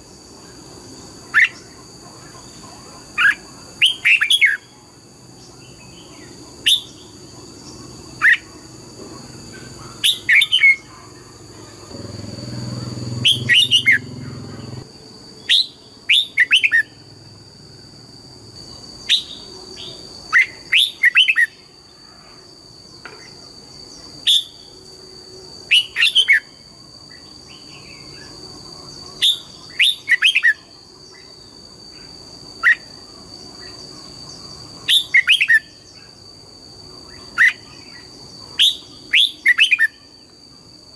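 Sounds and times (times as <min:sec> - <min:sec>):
steady high-pitched tone: 0:10.8 - 0:14.9
low hum: 0:11.6 - 0:14.8
bird singing whistled phrases: 0:13.2 - 0:14.1.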